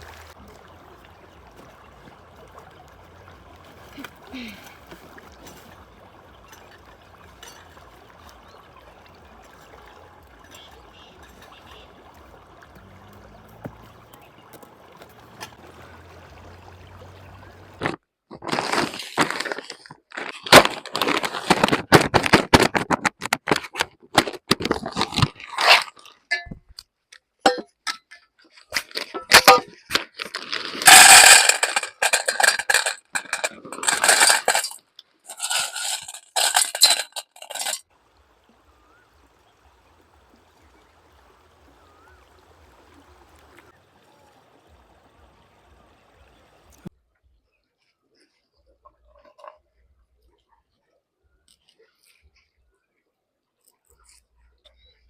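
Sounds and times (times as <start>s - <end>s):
objects clinking and knocking: 27.5s - 37.8s.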